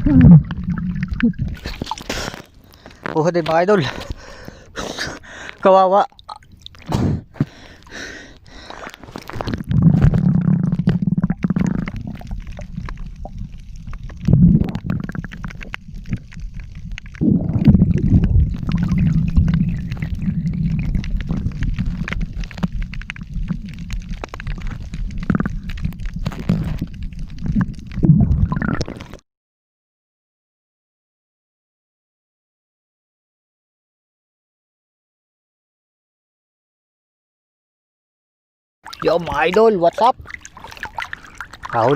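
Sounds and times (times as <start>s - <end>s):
underwater rumbling and gurgling: 0.0s - 3.1s, 6.1s - 29.2s, 38.8s - 41.9s.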